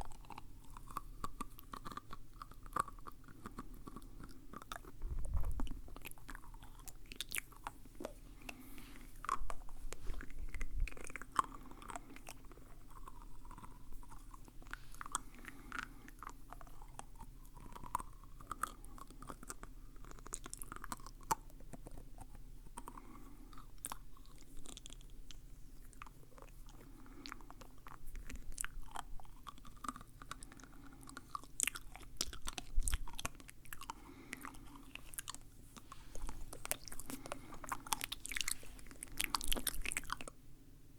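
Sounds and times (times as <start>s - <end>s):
chewing-like crunches: 0.0s - 40.4s
wet mouth clicks and smacks: 25.8s - 40.4s.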